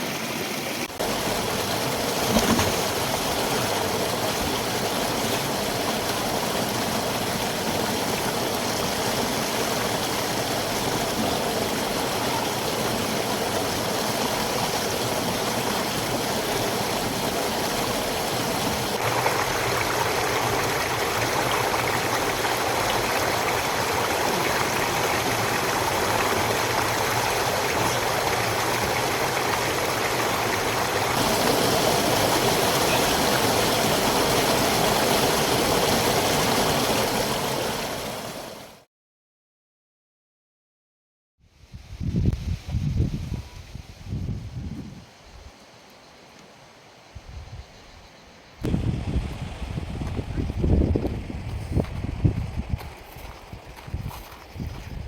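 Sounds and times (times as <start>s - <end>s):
river water rushing over rocks: 0.0s - 38.8s.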